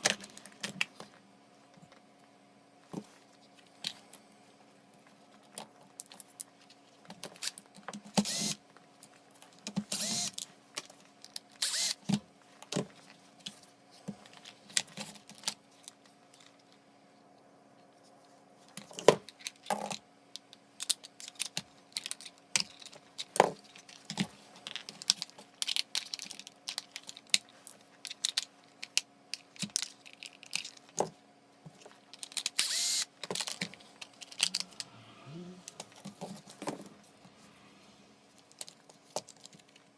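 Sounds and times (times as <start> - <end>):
faint steady hum: 0.0 - 39.9
small parts clicking and tapping: 18.8 - 31.1, 31.7 - 34.9.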